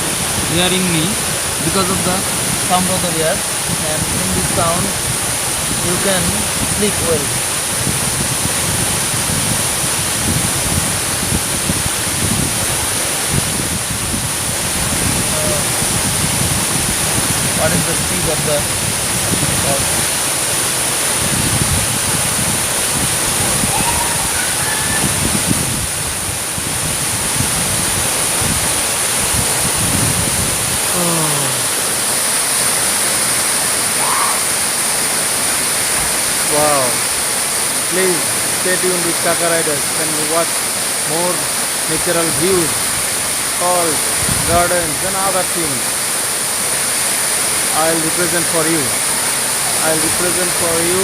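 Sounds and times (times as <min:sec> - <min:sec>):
wind buffeting microphone: 0:00.0 - 0:31.4, 0:42.3 - 0:45.1
waterfall rushing: 0:00.0 - 0:51.0.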